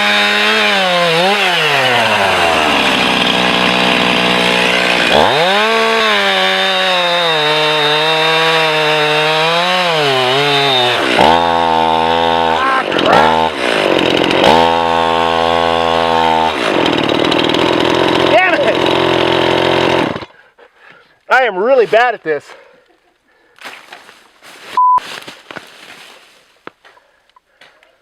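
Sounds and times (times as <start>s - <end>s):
chainsaw cutting into tree: 0.0s - 20.3s.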